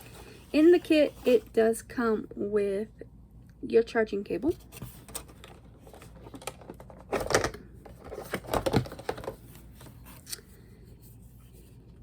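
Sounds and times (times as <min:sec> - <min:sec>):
clicks and rustles of packaging: 0:04.7 - 0:10.5.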